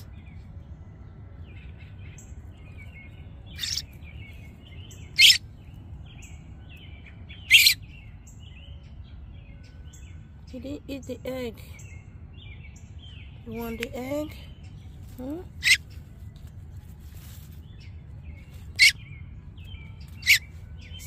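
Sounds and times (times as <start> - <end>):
small birds chirping: 0.0 - 21.0
fledgling harsh begging calls: 3.5 - 3.9, 5.0 - 5.4, 7.4 - 7.8, 15.5 - 15.9, 18.7 - 19.0, 20.2 - 20.5.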